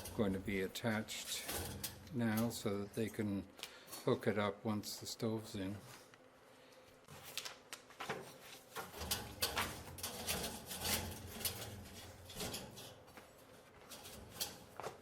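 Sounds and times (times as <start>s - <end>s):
metal parts clicking and scraping: 0.0s - 2.7s, 8.7s - 13.1s.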